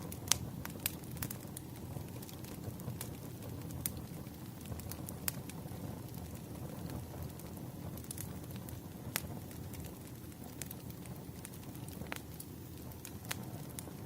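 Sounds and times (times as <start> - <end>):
low rumble of burning logs: 0.0 - 14.0
wood fire crackling: 0.0 - 14.0.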